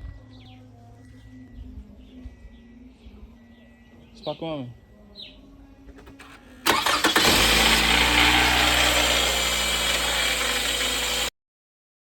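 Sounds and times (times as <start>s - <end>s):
car engine cranking and starting: 5.9s - 11.3s
engine running with a rattle: 5.9s - 11.3s.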